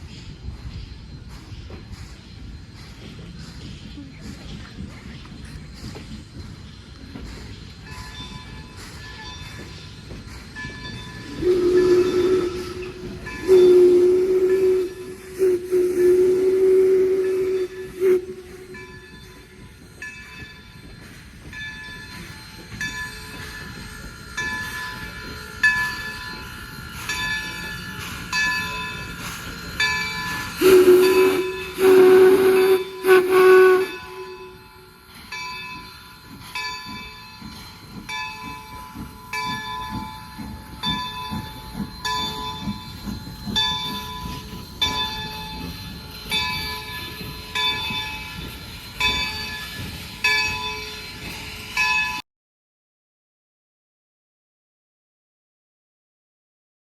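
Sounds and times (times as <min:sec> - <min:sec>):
passing train: 0:00.0 - 0:52.2
train bell ringing: 0:06.1 - 0:52.2
locomotive whistle blasts: 0:11.2 - 0:19.1, 0:30.4 - 0:34.9.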